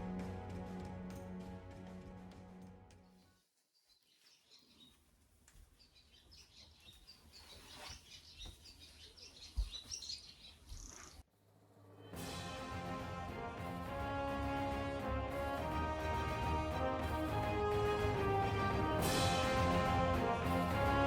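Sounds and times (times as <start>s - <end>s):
music: 0.0s - 3.2s, 11.6s - 21.0s
small birds chirping: 3.0s - 11.2s.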